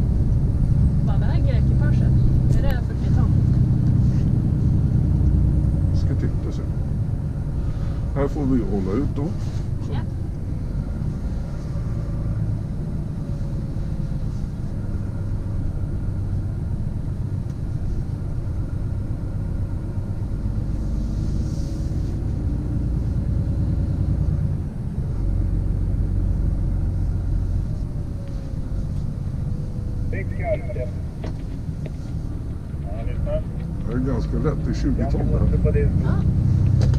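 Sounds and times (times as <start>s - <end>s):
truck rumble from inside cab: 0.0s - 36.9s
faint steady whine: 30.1s - 34.0s.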